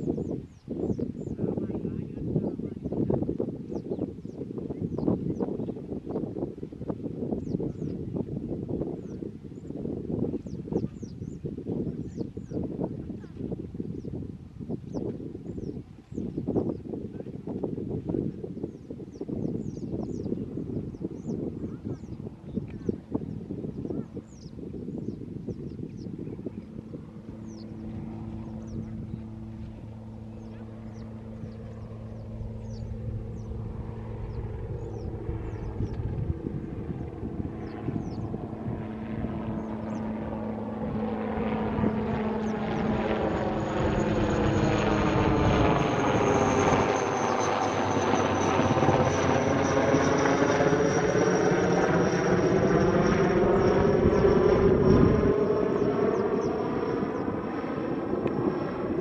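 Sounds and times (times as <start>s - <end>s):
small birds chirping: 0.0s - 3.0s, 3.7s - 6.2s, 9.0s - 14.2s, 18.6s - 26.7s, 27.3s - 29.4s, 30.3s - 36.1s, 37.6s - 38.4s, 39.5s - 40.2s
aircraft flying overhead: 0.0s - 59.0s.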